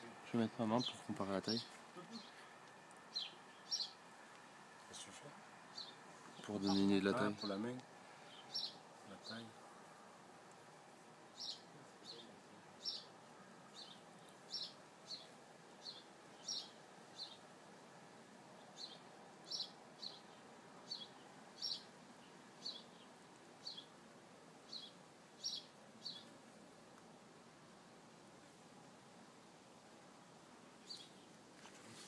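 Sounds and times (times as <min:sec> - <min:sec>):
bird chirping: 0:03.1 - 0:04.0, 0:05.7 - 0:09.5, 0:11.3 - 0:17.5, 0:18.6 - 0:24.0, 0:24.6 - 0:26.4, 0:30.8 - 0:31.4.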